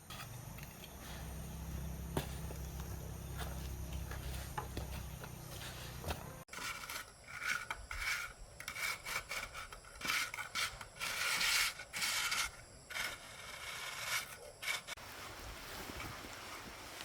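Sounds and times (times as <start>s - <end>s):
hand tool scraping concrete: 3.3s - 15.0s.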